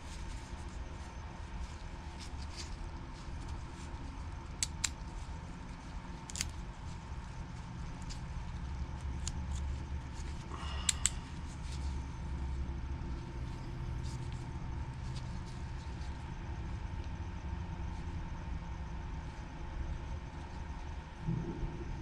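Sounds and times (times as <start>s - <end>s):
steady low hum: 0.0s - 22.0s
small parts clicking and tapping: 4.6s - 5.0s, 6.2s - 6.6s, 10.8s - 11.4s.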